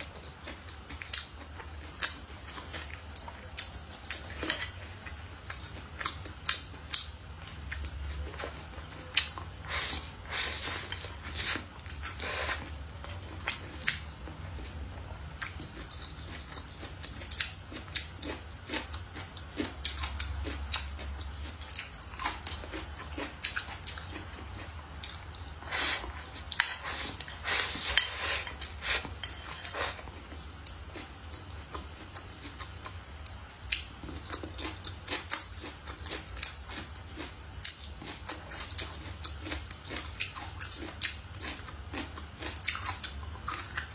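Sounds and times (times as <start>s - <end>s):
crunchy chewing and biting: 15.4s - 33.0s, 33.7s - 43.9s.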